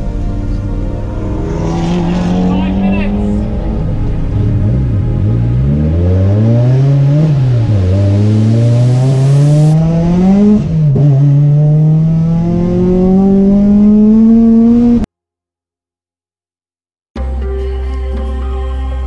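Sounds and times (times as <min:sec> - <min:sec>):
car engine revving through gears: 0:00.0 - 0:15.1.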